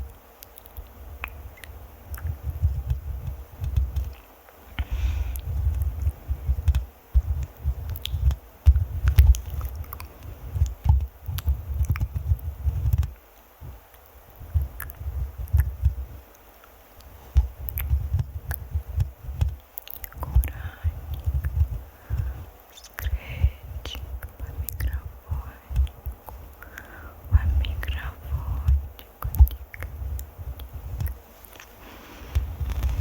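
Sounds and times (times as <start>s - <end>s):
fingers scratching on microphone: 1.3s - 4.3s, 5.0s - 16.2s, 17.0s - 26.5s, 27.2s - 33.0s.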